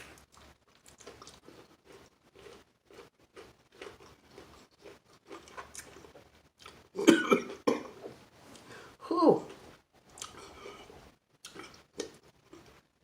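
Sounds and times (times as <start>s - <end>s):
chewing crispy chicken: 0.0s - 7.0s.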